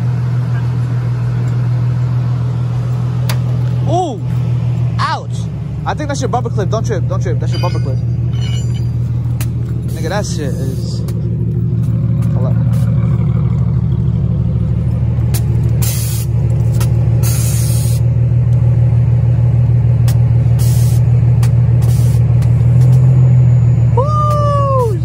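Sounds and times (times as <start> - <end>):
car engine idling: 0.0 - 25.0
person calling out: 3.8 - 4.3.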